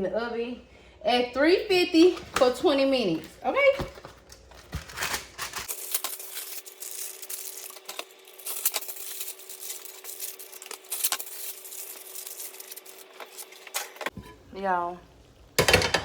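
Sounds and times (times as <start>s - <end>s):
aluminium foil crinkling: 2.0s - 14.2s.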